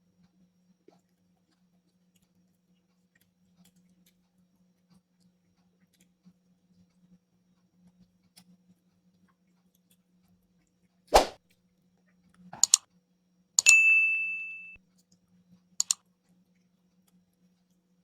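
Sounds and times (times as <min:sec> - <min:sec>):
quick clicks: 0:12.6 - 0:12.8.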